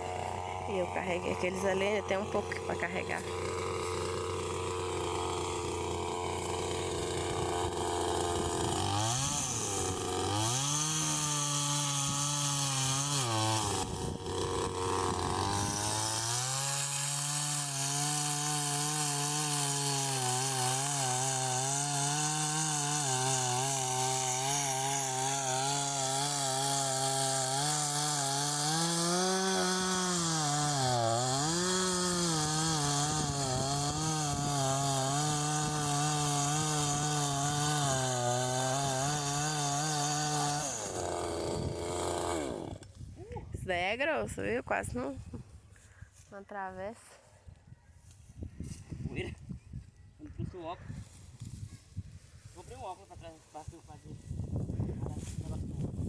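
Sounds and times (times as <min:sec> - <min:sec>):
chainsaw cutting firewood: 0:00.0 - 0:43.2, 0:54.4 - 0:56.0.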